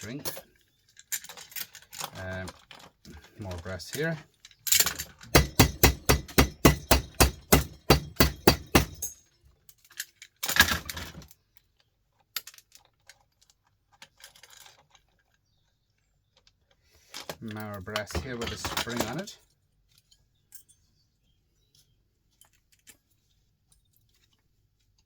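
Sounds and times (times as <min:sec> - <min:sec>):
rattling clatter: 0:01.2 - 0:09.2, 0:17.1 - 0:19.4
metal tapping on brass: 0:05.3 - 0:09.2
faint clinks: 0:20.0 - 0:21.0.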